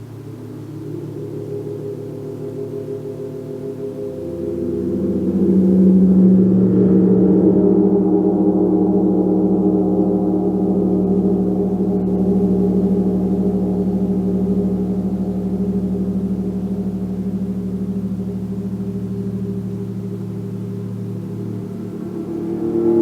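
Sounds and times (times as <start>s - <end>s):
gong ringing: 19.0s - 23.0s.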